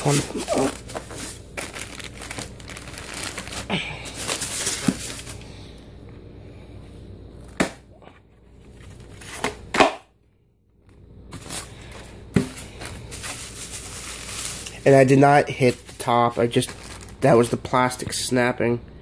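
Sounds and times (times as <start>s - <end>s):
cardboard packaging rustling: 0.0s - 5.4s, 8.5s - 9.5s, 11.3s - 18.0s.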